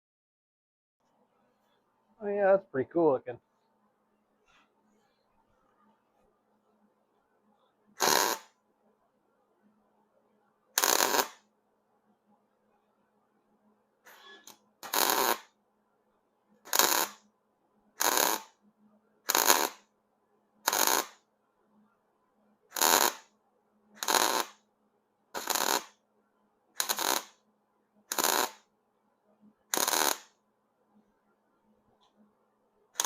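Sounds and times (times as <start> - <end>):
welder crackling bursts: 8.0 - 8.5, 10.8 - 11.4, 14.8 - 15.5, 16.7 - 17.2, 18.0 - 18.5, 19.3 - 19.8, 20.7 - 21.2, 22.7 - 23.3, 24.0 - 24.6, 25.4 - 26.0, 26.8 - 27.4, 28.1 - 28.6, 29.7 - 30.3.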